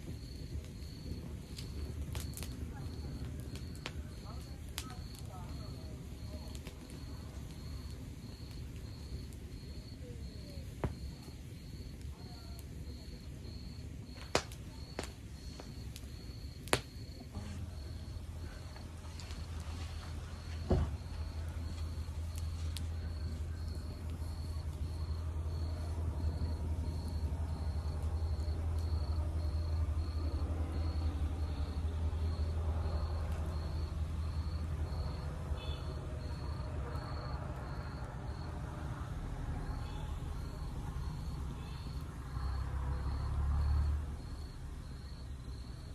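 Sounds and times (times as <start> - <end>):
high cricket-like chirp: 0.0 - 45.9
log fire crackling: 0.0 - 45.9
low rumble of flames: 0.0 - 45.9
sharp pops: 14.1 - 19.4.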